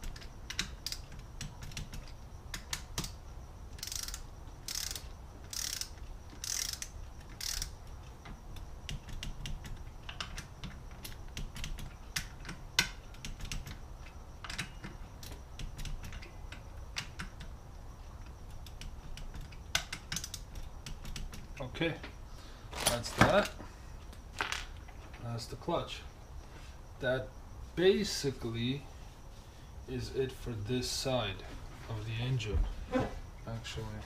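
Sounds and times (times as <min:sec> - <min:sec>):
tools and parts tapping: 0:00.0 - 0:03.2, 0:03.8 - 0:17.5, 0:18.1 - 0:25.2
hand ratchet clicking: 0:00.0 - 0:08.2, 0:18.2 - 0:21.6.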